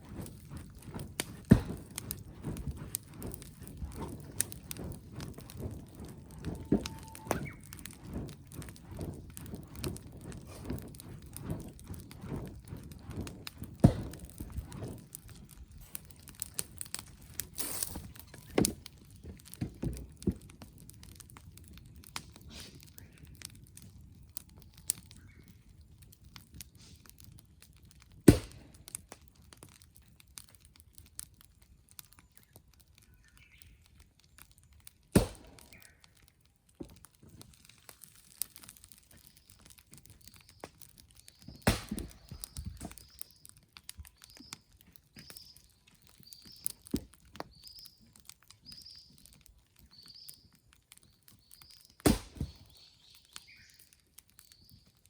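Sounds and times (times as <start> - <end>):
campfire crackling and popping: 0.0 - 55.0
faint bird chirps: 52.5 - 53.9.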